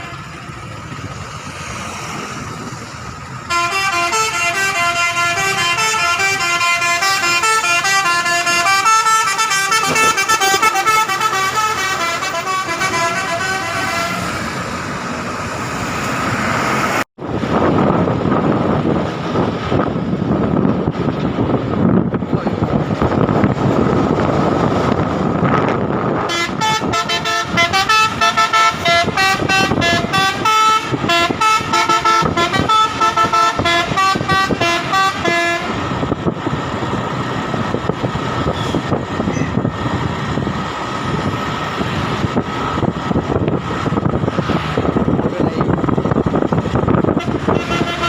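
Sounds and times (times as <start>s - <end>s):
truck running on road: 0.0s - 48.0s
musical truck horn melody: 3.5s - 14.6s, 26.2s - 35.9s, 47.0s - 48.0s.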